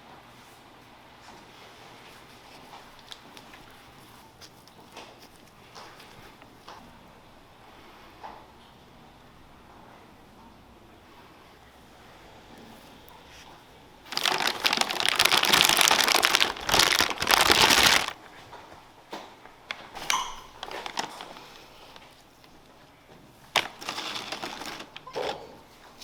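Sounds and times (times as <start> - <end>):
packaging crinkling and rustling: 2.1 - 6.9, 13.4 - 18.8, 19.7 - 26.0.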